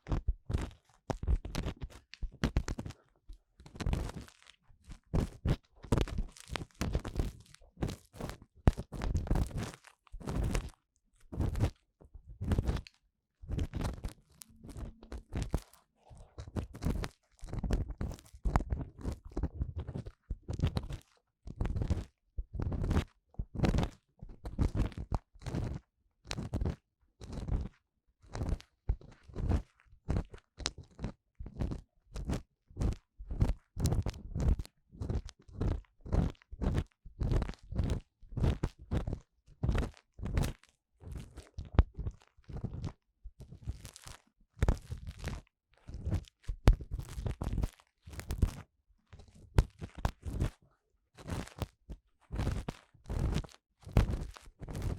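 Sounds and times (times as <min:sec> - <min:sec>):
tool scraping microphone ear: 0:13.7 - 0:15.8.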